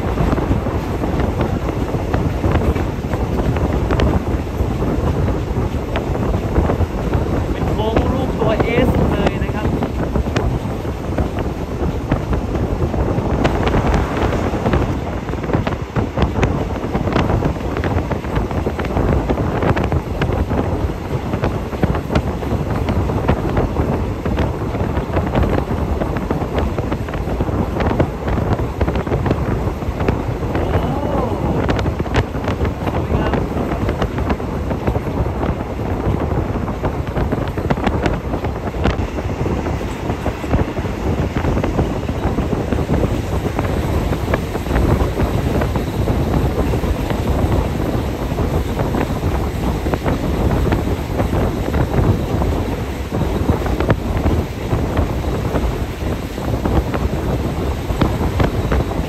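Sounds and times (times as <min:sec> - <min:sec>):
train wheels rumbling on rails: 0:00.0 - 0:59.0
wind rushing in: 0:00.0 - 0:59.0.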